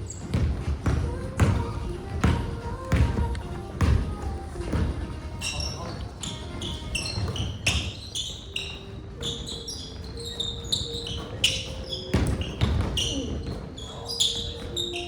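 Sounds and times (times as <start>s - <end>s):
basketball bouncing: 0.0s - 6.0s, 6.6s - 8.4s, 11.0s - 13.7s
sneaker squeaks: 0.0s - 15.0s.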